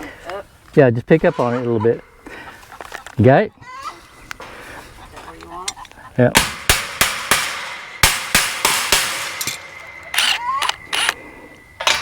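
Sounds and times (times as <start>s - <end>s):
sharp metal knocks: 6.3s - 12.0s.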